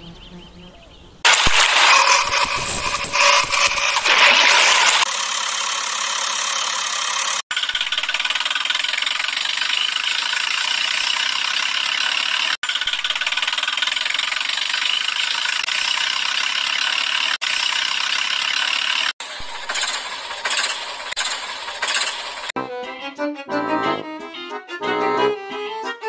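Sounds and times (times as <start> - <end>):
vehicle engine running: 4.7 - 22.5.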